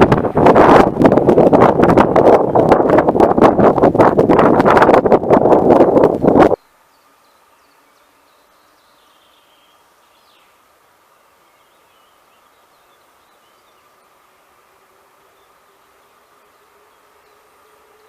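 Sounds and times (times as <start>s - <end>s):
low steady hiss: 0.0s - 18.0s
distant birds chirping: 6.6s - 18.0s.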